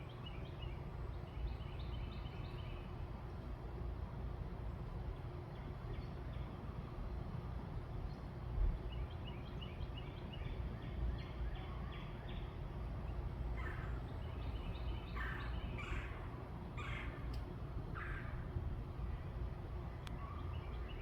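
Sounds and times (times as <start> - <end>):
birds calling: 9.0 - 18.9
steady low rumble: 12.3 - 21.0.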